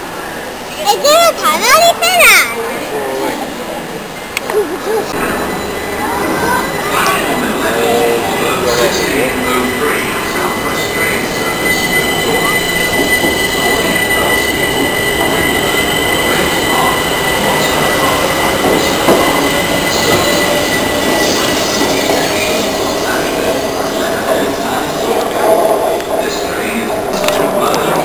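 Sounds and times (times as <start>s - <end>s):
train carriages rumbling: 4.0s - 28.0s
high-pitched wheel squeal: 5.1s - 25.0s.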